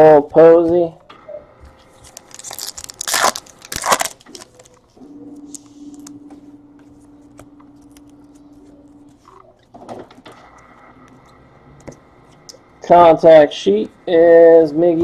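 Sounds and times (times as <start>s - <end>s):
steady low hum: 0.0s - 15.0s
wrapper torn and crinkled: 2.0s - 4.9s.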